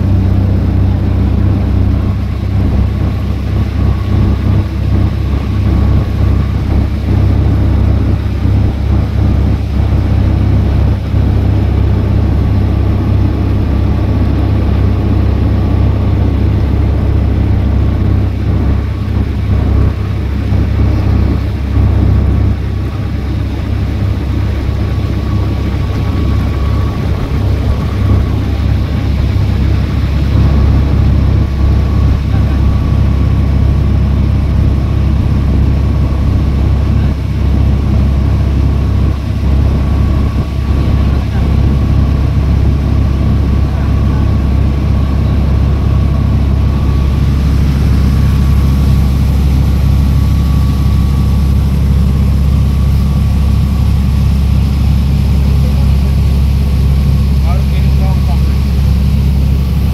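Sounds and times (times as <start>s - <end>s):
boat engine droning: 0.0s - 59.9s
faint steady whine: 0.0s - 59.9s.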